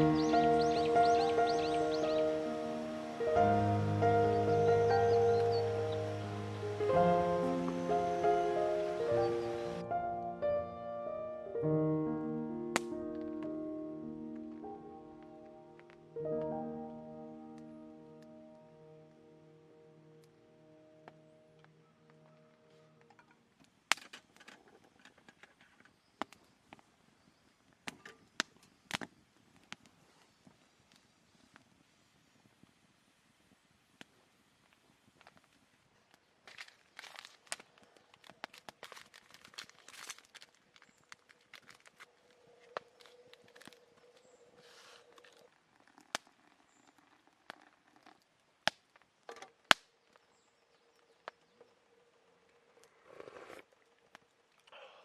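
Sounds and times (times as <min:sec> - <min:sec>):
campfire crackling: 0:00.0 - 0:10.7, 0:11.4 - 0:55.0
sharp snaps and clicks: 0:12.7 - 0:13.6, 0:27.8 - 0:30.0, 0:36.1 - 0:44.2, 0:45.0 - 0:50.2.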